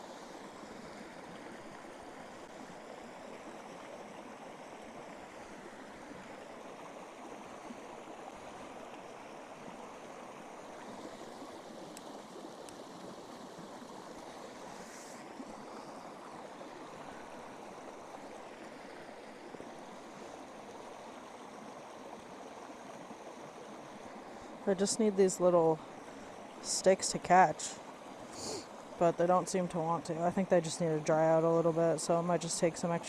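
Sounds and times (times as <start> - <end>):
running water rushing: 0.0 - 33.0
faint ticks: 11.9 - 12.8.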